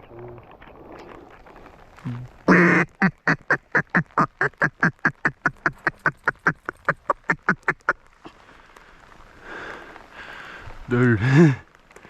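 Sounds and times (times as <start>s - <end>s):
duck call quacking: 2.5s - 8.0s.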